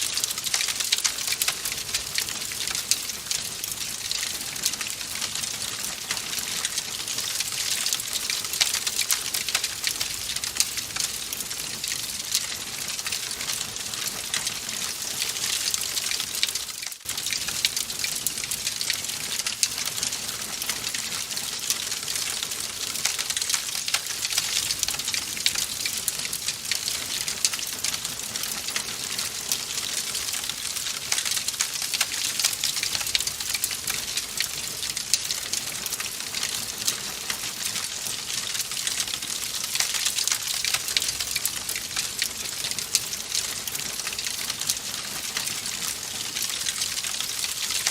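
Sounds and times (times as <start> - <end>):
wood fire crackling: 0.0 - 47.9.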